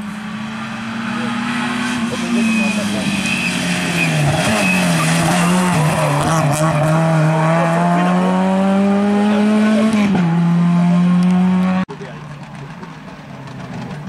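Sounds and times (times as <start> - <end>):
rally car engine accelerating: 0.0 - 14.0.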